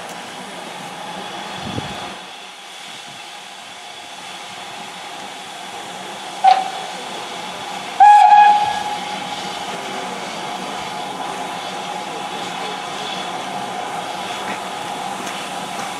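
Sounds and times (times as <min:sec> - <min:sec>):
steady steam hiss: 0:00.0 - 0:15.9
steam locomotive whistle: 0:06.4 - 0:06.9, 0:07.9 - 0:09.4.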